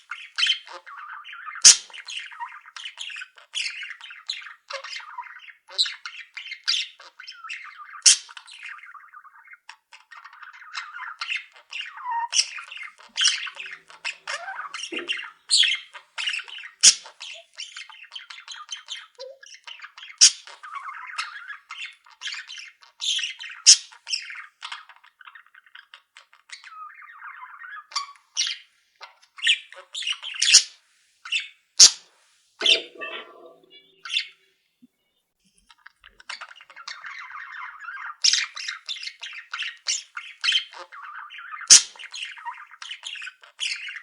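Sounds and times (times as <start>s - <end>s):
budgies chattering and warbling: 0.0s - 44.0s
sharp bird squawks and chirps: 10.5s - 21.7s, 29.4s - 30.8s, 31.4s - 34.5s, 36.1s - 43.1s.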